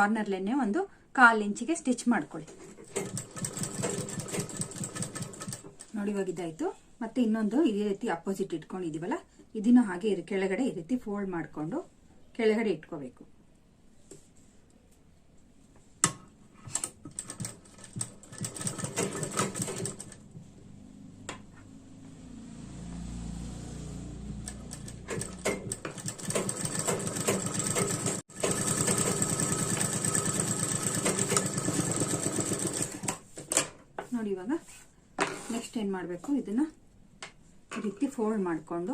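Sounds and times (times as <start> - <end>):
sewing machine stitching: 2.6 - 5.8, 16.7 - 20.3, 24.4 - 33.3.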